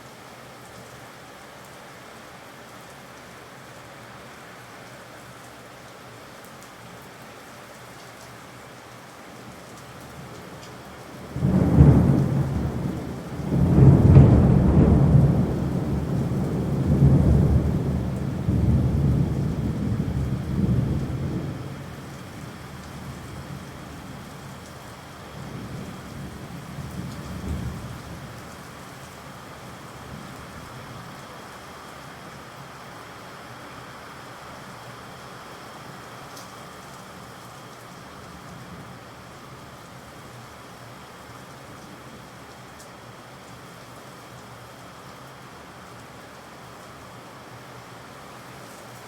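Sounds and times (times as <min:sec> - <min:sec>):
steady rain: 0:00.0 - 0:49.0
thunder rumbling: 0:11.2 - 0:24.2, 0:25.3 - 0:28.4.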